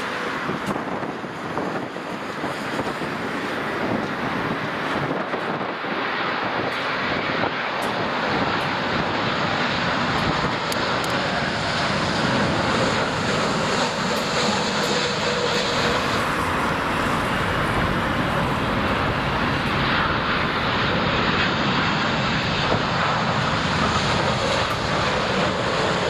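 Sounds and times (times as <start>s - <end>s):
jet engines running: 0.0s - 26.0s
faint whine: 13.0s - 21.7s.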